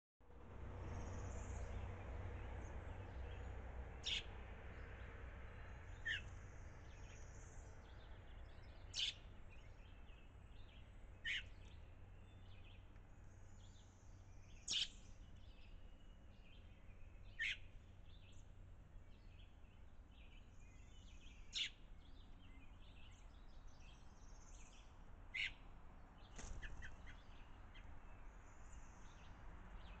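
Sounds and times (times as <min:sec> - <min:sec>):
low steady rumble: 0:00.2 - 0:30.0
faint bird chirping: 0:00.8 - 0:30.0
bird sharp chirp: 0:04.0 - 0:04.4, 0:06.0 - 0:06.3, 0:08.0 - 0:12.8, 0:13.6 - 0:18.4, 0:20.2 - 0:25.6.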